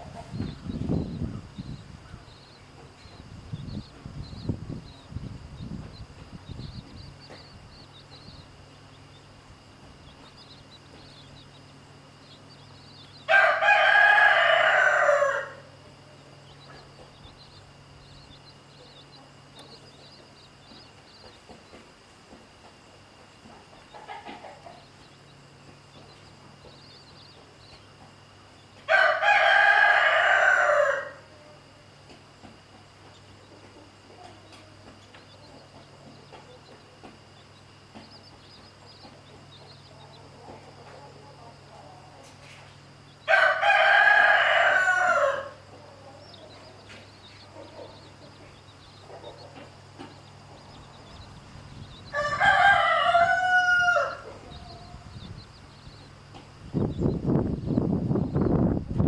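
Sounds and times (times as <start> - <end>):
chicks peeping: 0.0 - 59.0
rooster crowing: 13.2 - 15.7, 28.8 - 31.6, 43.2 - 46.4, 52.0 - 55.2.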